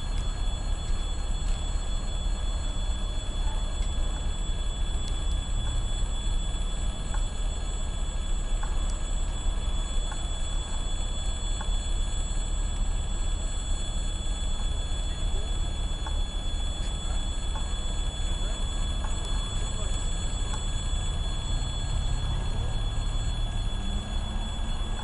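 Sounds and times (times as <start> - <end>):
diesel locomotive rumble: 14.4 - 25.0.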